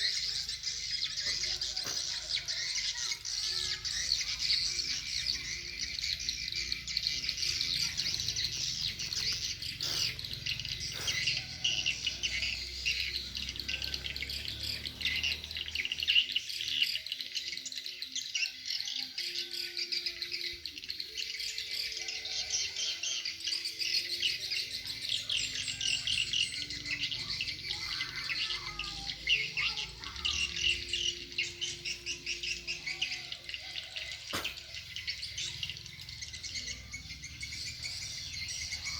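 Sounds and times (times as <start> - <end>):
high twittering of swiftlet chirps: 0.0 - 17.7.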